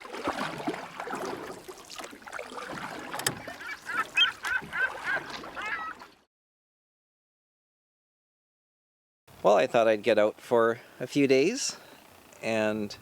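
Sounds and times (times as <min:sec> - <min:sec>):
birds calling: 0:03.1 - 0:06.1.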